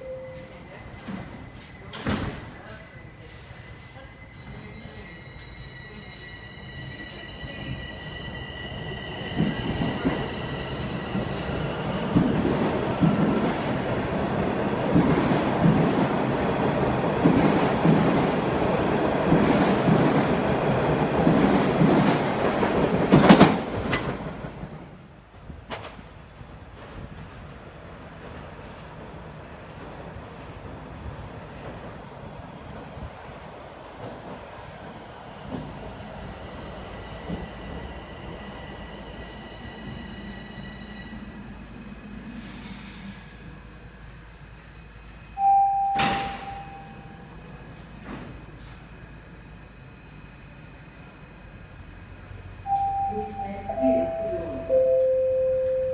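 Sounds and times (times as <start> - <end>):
subway wheels clacking over rail joints: 9.1 - 40.5
high-pitched wheel squeal: 39.6 - 43.4.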